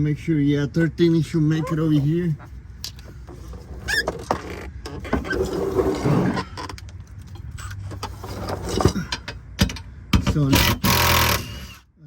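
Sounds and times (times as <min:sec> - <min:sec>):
metal clicks and knocks: 0:06.6 - 0:10.7.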